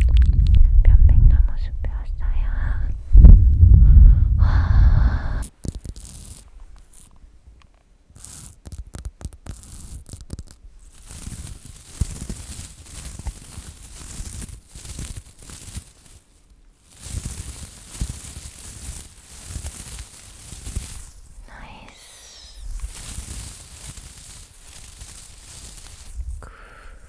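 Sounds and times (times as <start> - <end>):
scratching at microphone: 5.3 - 7.3, 8.1 - 27.0.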